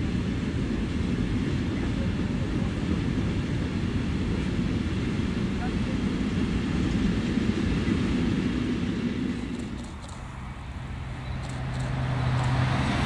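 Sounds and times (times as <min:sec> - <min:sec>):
freight train rumbling past: 0:00.0 - 0:13.0
high-speed train low hum: 0:00.0 - 0:13.0.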